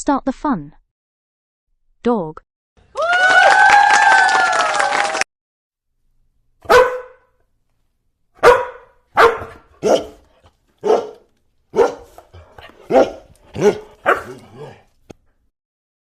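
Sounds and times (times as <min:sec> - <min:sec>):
dog barking: 0:06.6 - 0:07.3, 0:08.4 - 0:14.8.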